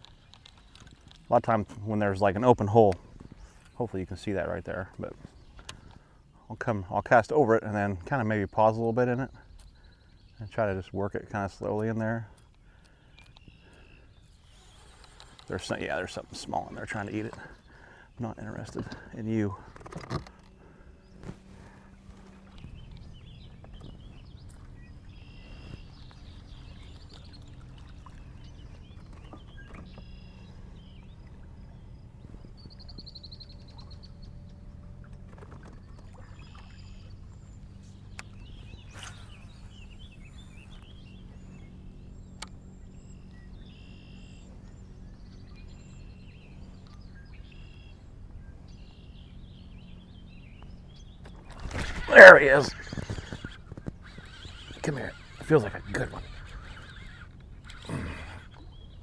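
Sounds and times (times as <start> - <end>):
faint clicks: 0.0 - 1.3, 11.7 - 15.8, 52.8 - 58.7
birds chirping and trilling: 0.0 - 59.0
low steady hum: 0.0 - 59.0.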